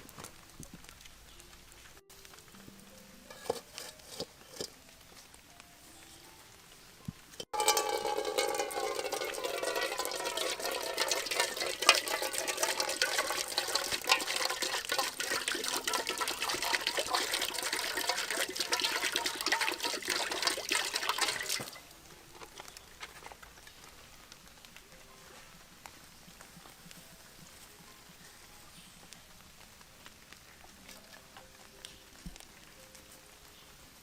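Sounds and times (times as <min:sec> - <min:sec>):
water running and splashing: 0:07.4 - 0:22.6.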